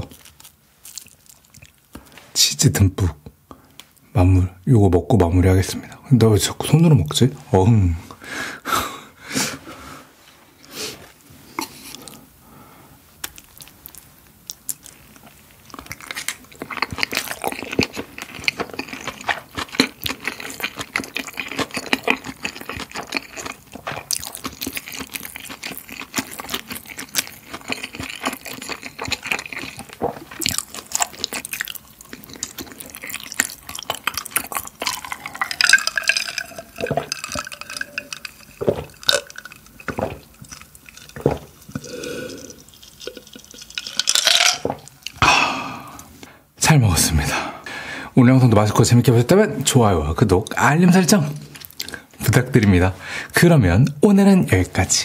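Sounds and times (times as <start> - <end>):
wet chewing and mouth sounds: 0.0 - 2.2, 13.2 - 46.3, 50.3 - 52.8
swallowing: 26.8 - 46.2.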